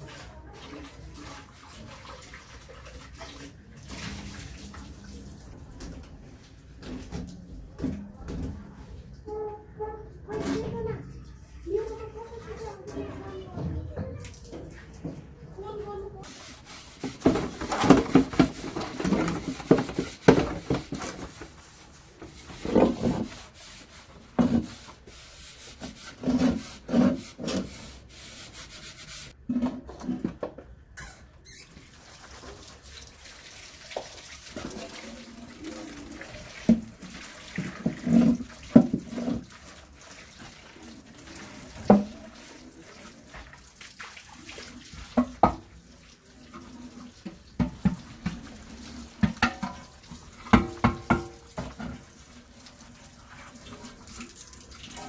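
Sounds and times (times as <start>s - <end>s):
running water at sink: 0.0s - 29.4s, 31.4s - 55.0s
dishes scrubbing: 9.3s - 30.4s, 31.6s - 55.0s
dishes clattering: 17.0s - 21.5s, 47.6s - 52.1s.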